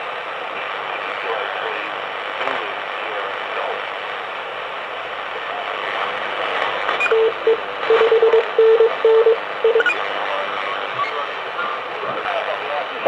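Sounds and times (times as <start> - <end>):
radio band noise hiss: 0.0 - 13.0
morse code tone: 7.0 - 10.0.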